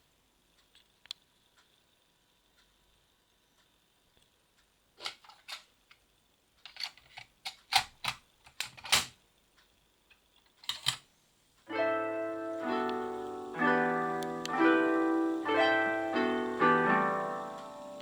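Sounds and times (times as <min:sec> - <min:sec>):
music playing: 0:11.7 - 0:18.0.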